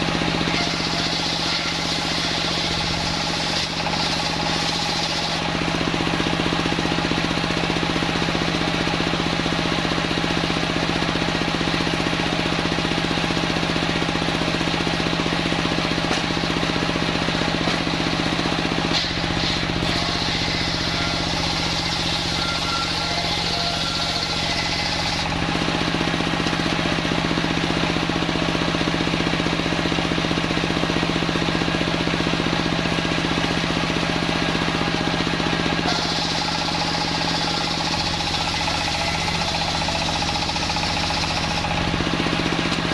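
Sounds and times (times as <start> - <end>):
table circular saw humming: 0.0 - 42.9.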